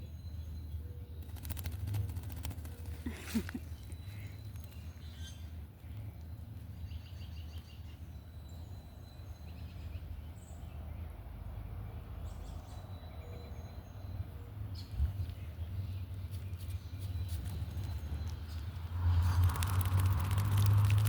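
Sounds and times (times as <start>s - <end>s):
low outdoor rumble: 13.8s - 21.0s.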